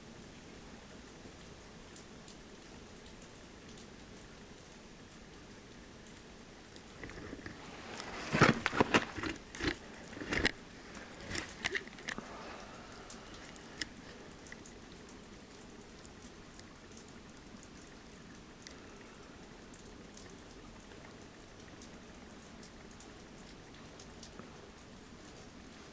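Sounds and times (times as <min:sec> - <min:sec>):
sharp crunching clicks and knocks: 0:07.0 - 0:14.7.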